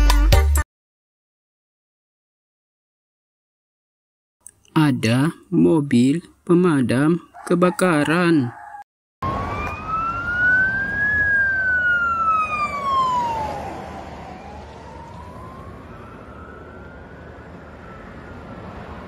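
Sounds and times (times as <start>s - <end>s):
road traffic noise: 5.8s - 19.0s
fire engine siren wailing: 8.5s - 19.0s.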